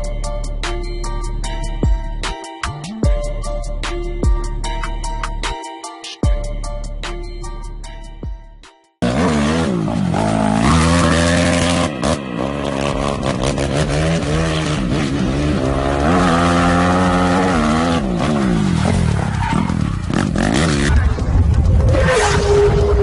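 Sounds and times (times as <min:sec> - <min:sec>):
motorcycle engine revving: 0:09.0 - 0:23.0.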